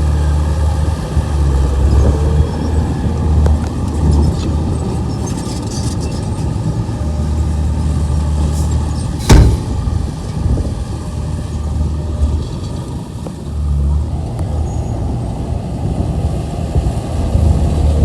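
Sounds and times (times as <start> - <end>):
diesel engine droning: 0.0 - 18.0
loud bang: 9.2 - 10.7.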